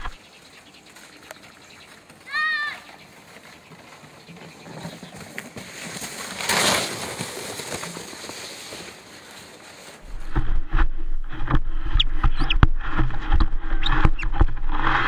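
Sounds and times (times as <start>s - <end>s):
sled sliding over snow: 0.0s - 15.0s.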